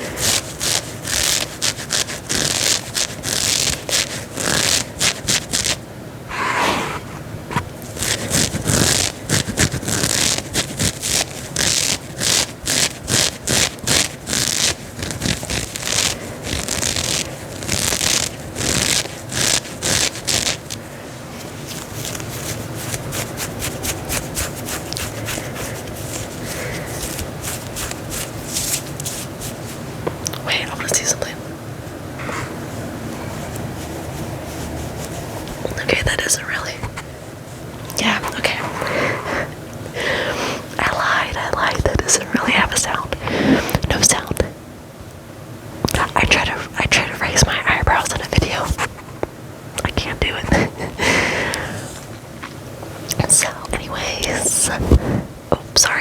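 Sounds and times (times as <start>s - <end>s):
fingernails scratching fabric: 0.0s - 20.8s, 21.4s - 29.8s, 32.3s - 37.0s.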